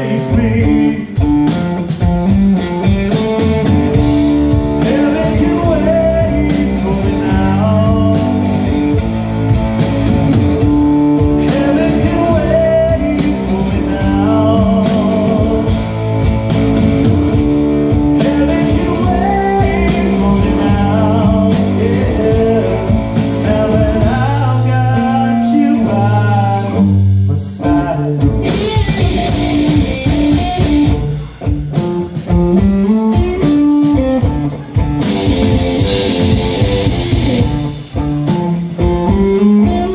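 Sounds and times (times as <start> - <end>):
person singing: 0.0 - 1.6, 4.7 - 8.8, 11.2 - 16.0, 17.9 - 29.4
blues-rock band playing: 0.0 - 39.9
electric guitar: 0.0 - 39.9.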